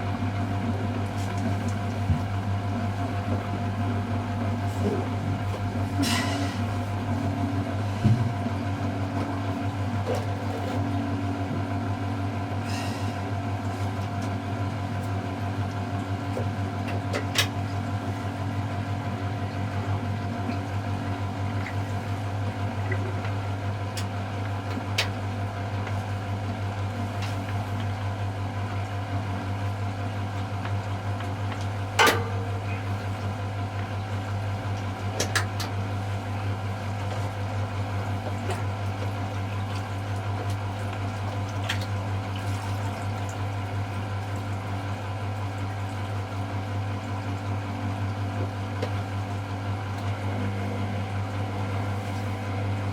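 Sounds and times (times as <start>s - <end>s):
washing machine hum: 0.0s - 52.9s
washing machine knock: 8.0s - 8.4s.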